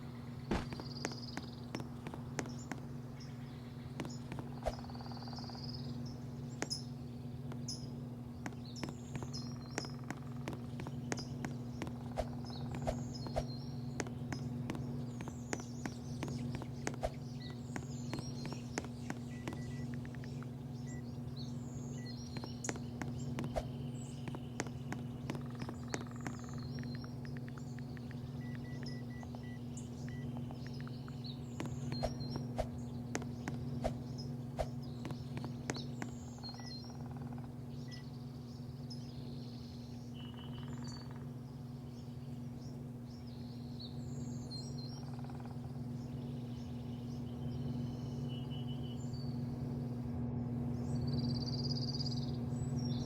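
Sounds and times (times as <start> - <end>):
birds chirping: 0.0 - 49.4
low mechanical hum: 0.0 - 53.0.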